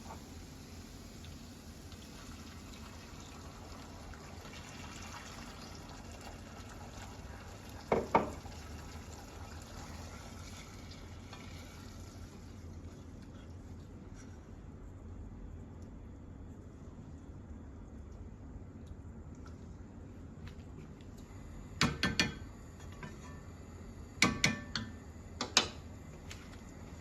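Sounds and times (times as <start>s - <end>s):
food frying hiss: 0.0s - 12.8s.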